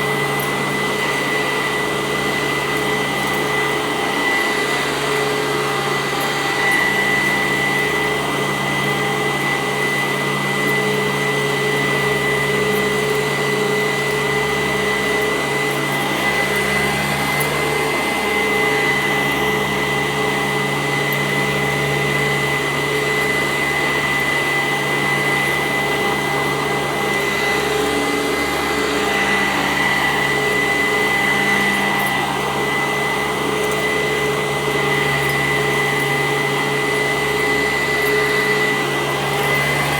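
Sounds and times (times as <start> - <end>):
upright vacuum cleaner running: 0.0 - 39.9.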